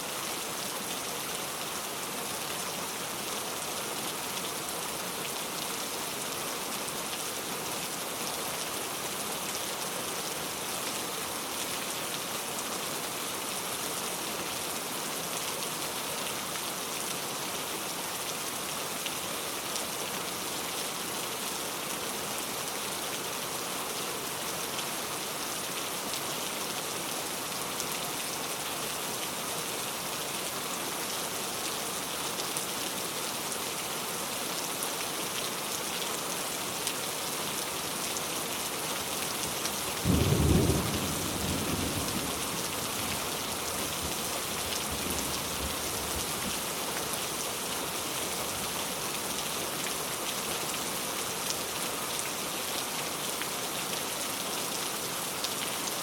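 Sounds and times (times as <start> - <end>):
rain hissing: 39.5 - 47.2.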